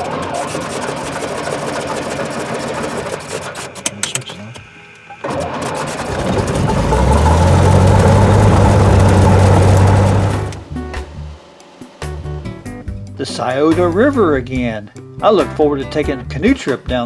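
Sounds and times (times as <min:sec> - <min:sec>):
piston aircraft engine starting: 0:00.0 - 0:12.4.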